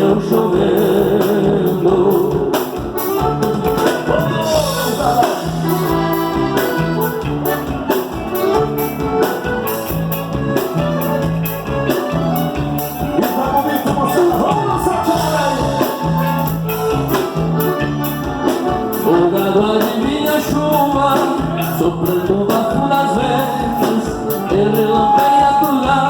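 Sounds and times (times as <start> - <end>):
person singing: 0.0 - 3.1, 3.7 - 6.7, 13.0 - 26.0
folk band playing: 0.0 - 26.0.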